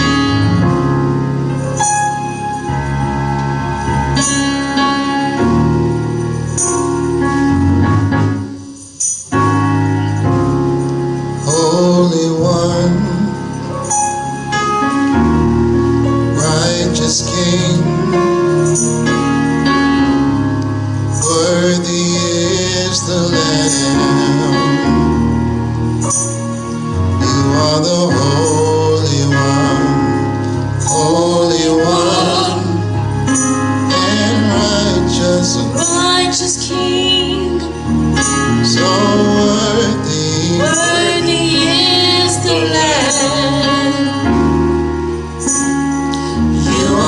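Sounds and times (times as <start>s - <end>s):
organ: 0.0s - 47.0s
tambourine: 1.6s - 15.6s, 16.6s - 20.4s, 21.0s - 47.0s
gospel choir singing: 30.8s - 37.6s, 38.4s - 44.8s, 46.2s - 47.0s.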